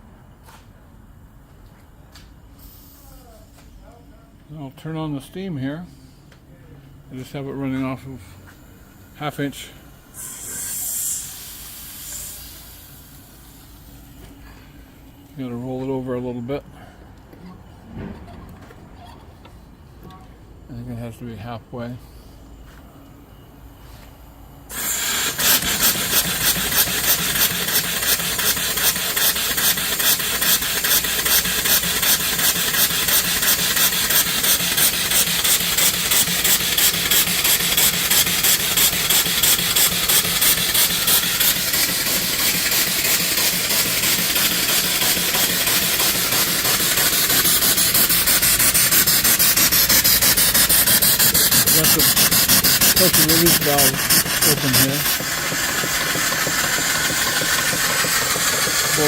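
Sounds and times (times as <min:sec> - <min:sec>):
steam engine chuffing: 0:08.5 - 0:15.6, 0:24.7 - 0:59.0
valve blowing out water and steam: 0:08.6 - 0:15.8, 0:24.7 - 0:59.0.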